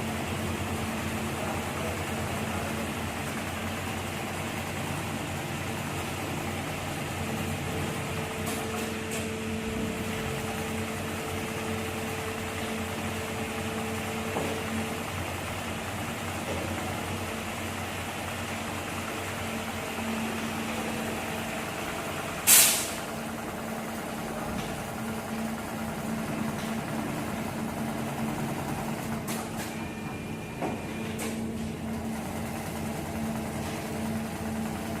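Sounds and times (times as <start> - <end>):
sewing machine humming: 31.7 - 35.0.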